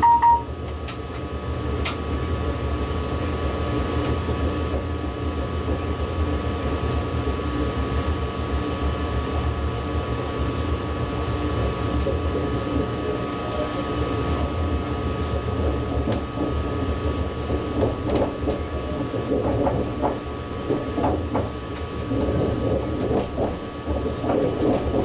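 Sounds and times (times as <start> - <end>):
high whine: 0.0 - 0.5
train low rumble: 0.0 - 25.0
wheels clattering on track: 15.3 - 25.0.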